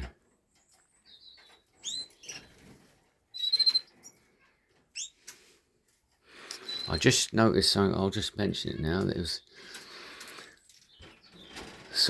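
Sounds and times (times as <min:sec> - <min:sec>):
finches chirping: 0:00.6 - 0:02.7, 0:03.3 - 0:04.2, 0:04.9 - 0:05.2, 0:06.6 - 0:07.1.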